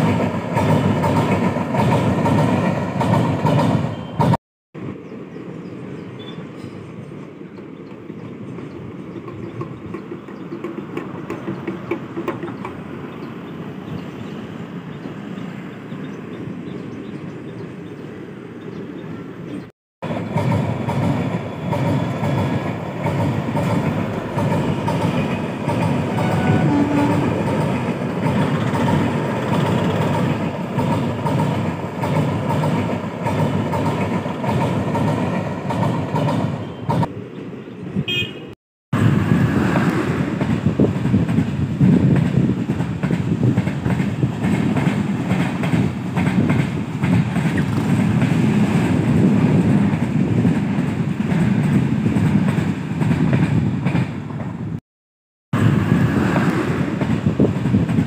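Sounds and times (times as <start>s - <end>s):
train wheels clattering over rails: 0.0s - 4.4s, 20.1s - 37.1s, 39.6s - 54.6s.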